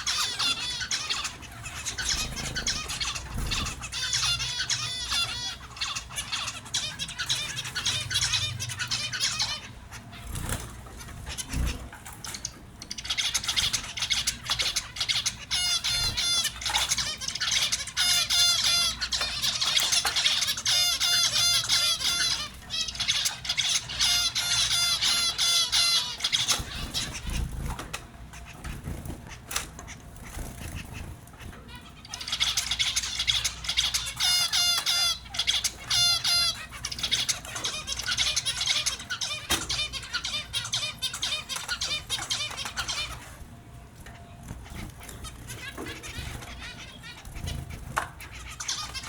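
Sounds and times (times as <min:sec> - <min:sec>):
finches chirping: 0:00.0 - 0:49.0.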